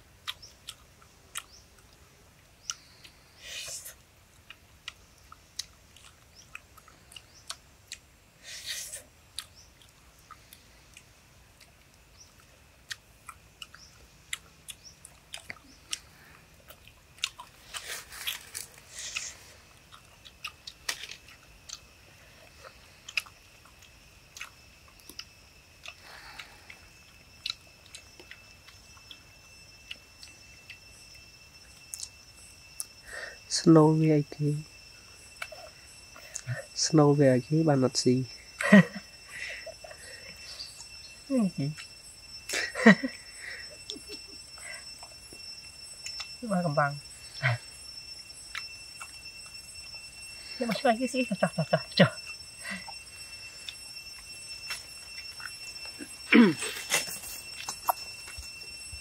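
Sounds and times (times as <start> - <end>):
person chewing: 0.1 - 2.0, 2.6 - 31.2, 43.5 - 46.4, 48.4 - 49.9, 52.2 - 58.6
high-pitched tone: 26.0 - 59.0.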